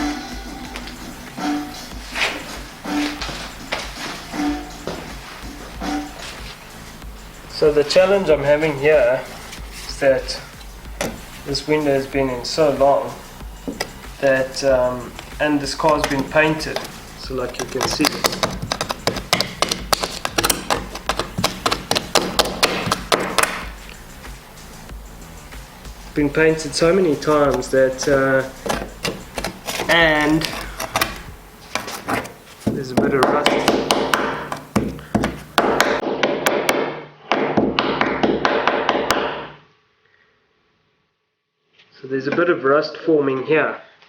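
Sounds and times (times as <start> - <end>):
metal scraper tapping and clicking: 15.9 - 23.7, 28.6 - 32.3.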